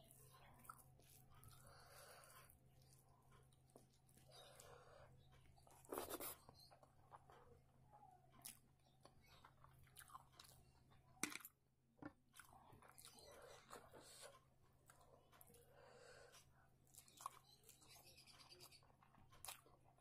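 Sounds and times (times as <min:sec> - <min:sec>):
person chewing: 0:00.1 - 0:07.4, 0:08.4 - 0:10.6, 0:12.3 - 0:20.0.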